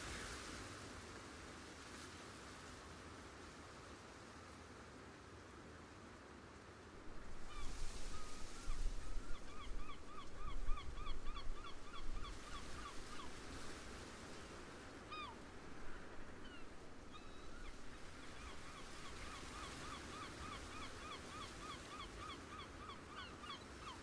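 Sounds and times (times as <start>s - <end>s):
waterbirds calling: 7.2s - 24.0s.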